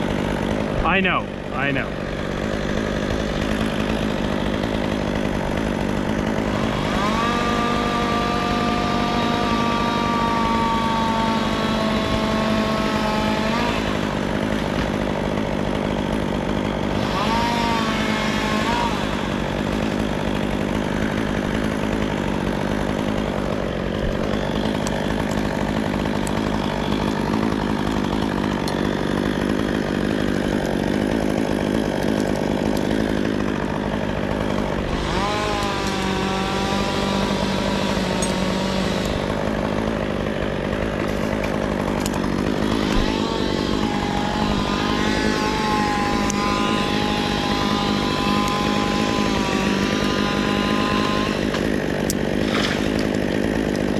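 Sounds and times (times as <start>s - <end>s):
chainsaw cutting wood: 0.0s - 53.9s.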